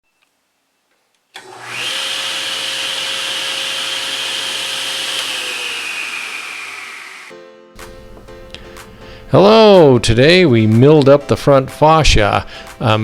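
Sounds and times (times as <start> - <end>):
electric motor whining: 1.4 - 7.3.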